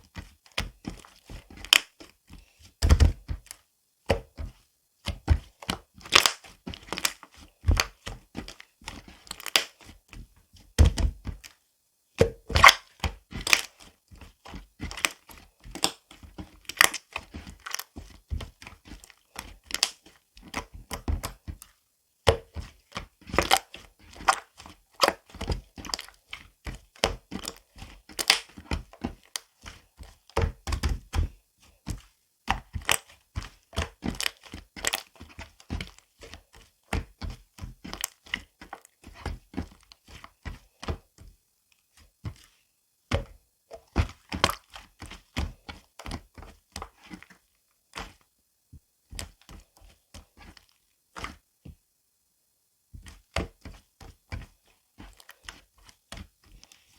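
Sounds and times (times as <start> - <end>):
material crinkling: 5.4 - 10.0, 12.5 - 20.7, 31.9 - 40.8.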